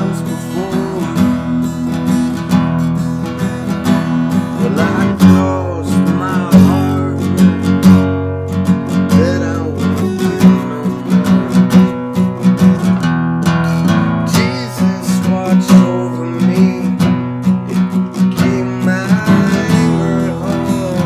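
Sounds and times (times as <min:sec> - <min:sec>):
acoustic guitar strumming chords: 0:00.0 - 0:21.0
sliding guitar melody: 0:00.0 - 0:21.0.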